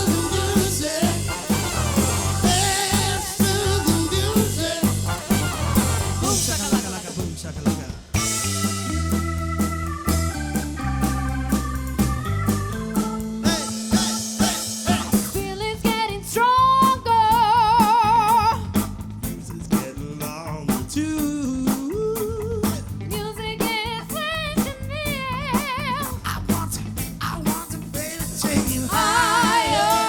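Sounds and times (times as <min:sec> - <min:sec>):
organ chords: 0:00.0 - 0:19.6, 0:27.6 - 0:30.0
drum kit beat: 0:00.0 - 0:30.0
soul band playing: 0:00.0 - 0:30.0.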